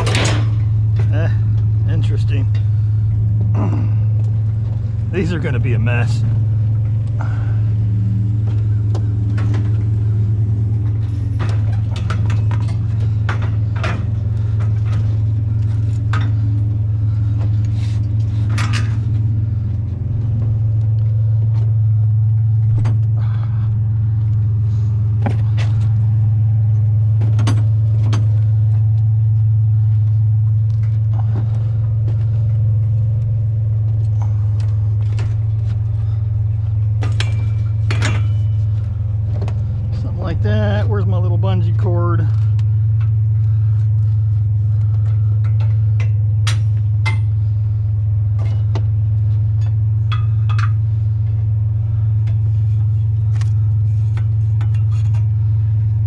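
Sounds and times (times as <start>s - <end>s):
metal scrap clanking: 0.0s - 1.1s, 37.0s - 38.8s
truck engine idling: 0.0s - 56.0s.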